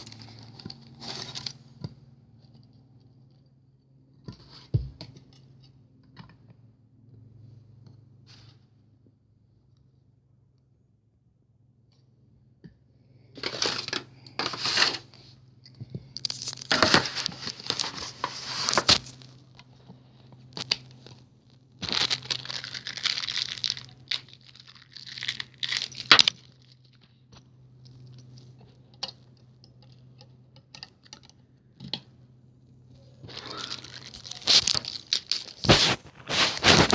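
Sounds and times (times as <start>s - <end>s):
steady low hum: 0.0s - 36.9s
packaging torn and crinkled: 16.2s - 19.4s, 21.8s - 27.1s, 33.3s - 36.9s.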